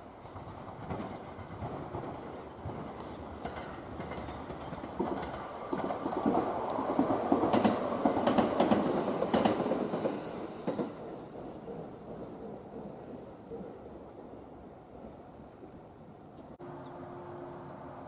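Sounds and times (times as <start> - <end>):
passenger train passing: 0.0 - 18.0
wheels clattering over rail joints: 0.3 - 12.2.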